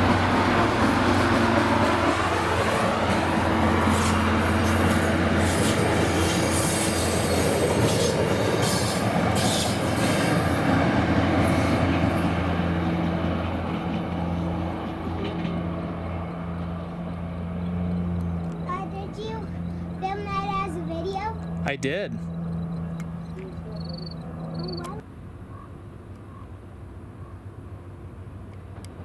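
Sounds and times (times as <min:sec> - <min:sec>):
train wheels rolling: 0:00.0 - 0:21.6
diesel train engine hum: 0:00.0 - 0:29.0.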